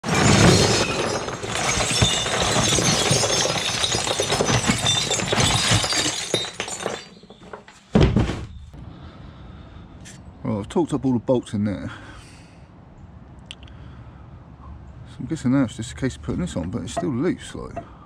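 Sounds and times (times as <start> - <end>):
crashing and clattering breakage: 0.0 - 8.5.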